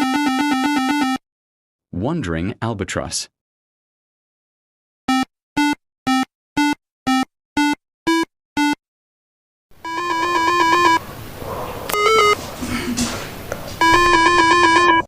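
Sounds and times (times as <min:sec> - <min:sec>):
warbling electronic trill: 0:09.9 - 0:11.0
short electronic beeps: 0:12.0 - 0:12.4, 0:13.8 - 0:15.0.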